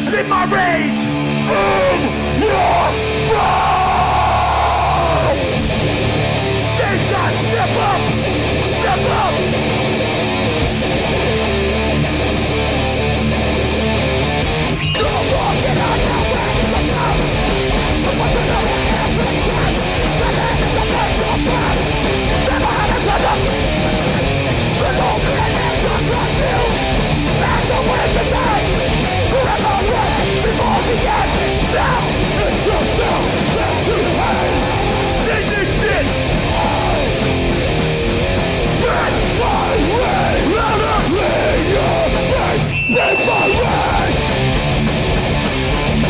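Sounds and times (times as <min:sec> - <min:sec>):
punk band playing live: 0:00.0 - 0:46.0.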